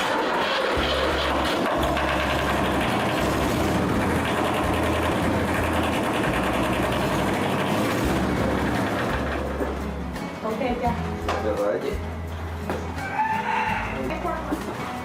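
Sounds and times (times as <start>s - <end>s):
tractor diesel engine idling: 0.8s - 9.8s.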